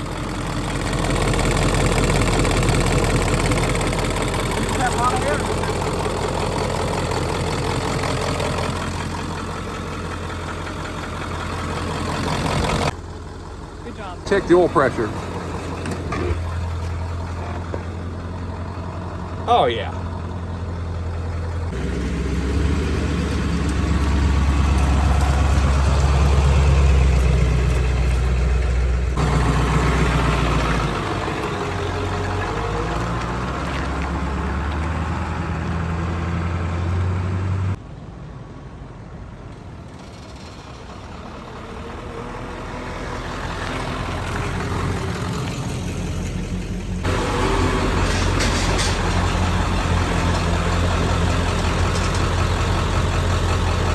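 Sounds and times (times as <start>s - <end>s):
diesel engine idling: 0.0s - 37.8s, 40.0s - 53.9s.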